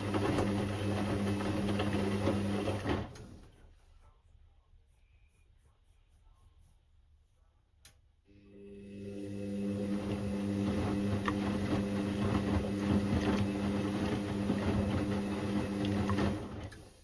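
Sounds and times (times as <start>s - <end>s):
washing machine motor hum: 0.0s - 3.6s, 8.3s - 17.0s
wet load tumbling and clicking: 10.6s - 16.8s.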